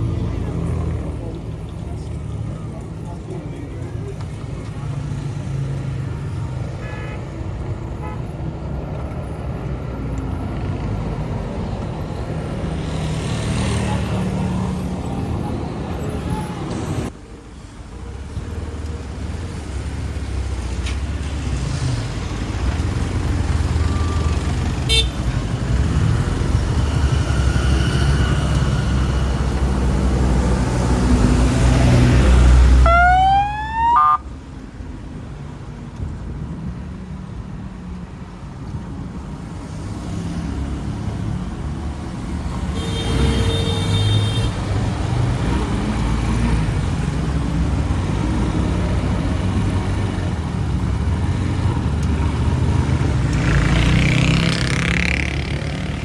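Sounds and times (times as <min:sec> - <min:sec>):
rising engine whines: 0:32.8 - 0:34.3.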